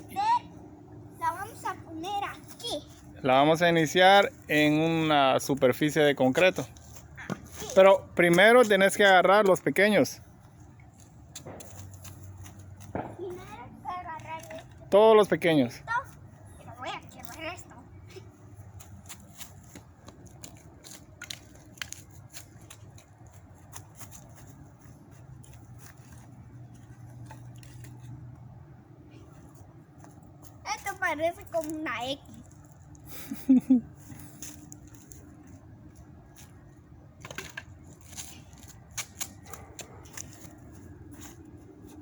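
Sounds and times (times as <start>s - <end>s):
dry sticks snapping: 18.8s - 24.3s, 36.0s - 40.7s.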